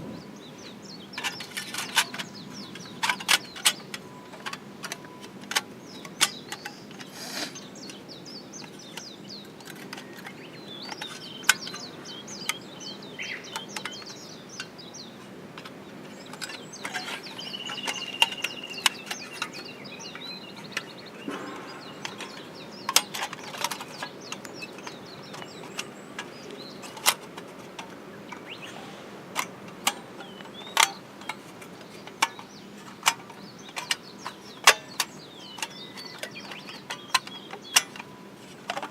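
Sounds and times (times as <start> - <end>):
birds chirping: 0.0 - 38.9
sharp clicks and knocks: 15.6 - 28.8, 29.4 - 38.9.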